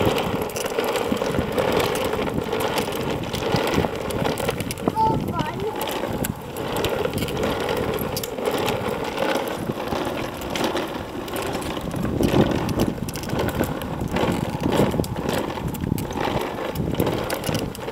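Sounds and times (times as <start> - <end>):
toy truck wheels rumbling on concrete: 0.0 - 17.9.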